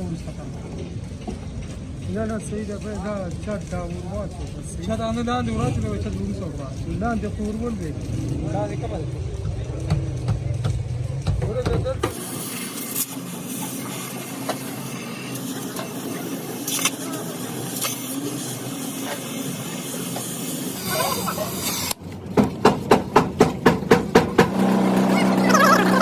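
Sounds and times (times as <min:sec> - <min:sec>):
steady hiss: 0:12.0 - 0:22.0.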